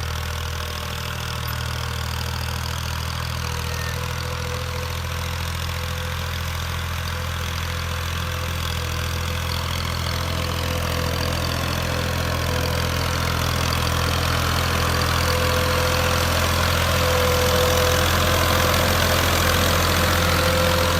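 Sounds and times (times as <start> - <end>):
tractor diesel engine idling: 0.0 - 20.9.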